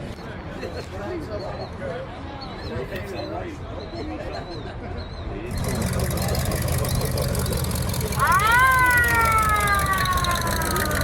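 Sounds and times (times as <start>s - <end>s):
road noise: 5.3s - 11.0s
car engine rumble: 5.5s - 11.0s
siren-like wail: 8.2s - 11.0s.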